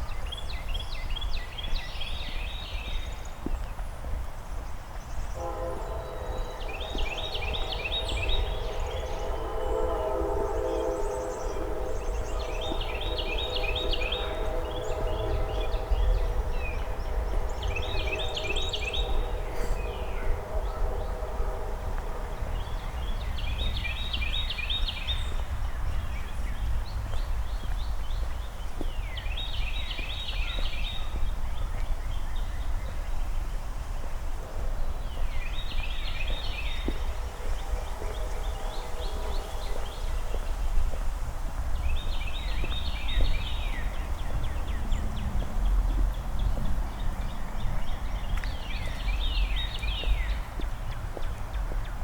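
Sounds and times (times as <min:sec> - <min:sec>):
songbird singing: 0:04.4 - 0:34.0, 0:34.8 - 0:40.8, 0:41.7 - 0:52.0.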